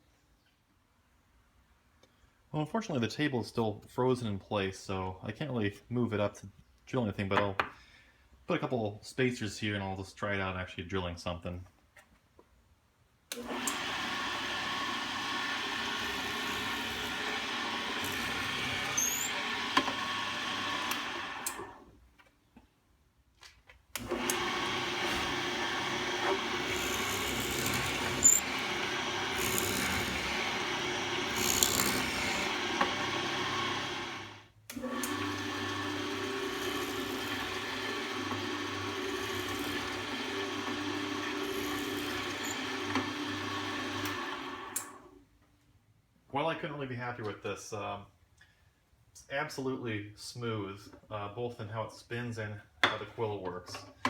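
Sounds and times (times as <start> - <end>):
drill press motor humming: 13.3 - 21.8, 24.0 - 45.0.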